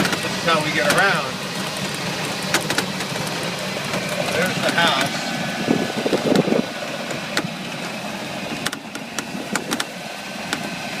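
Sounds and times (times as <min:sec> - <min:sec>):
golf cart running: 0:00.0 - 0:11.0.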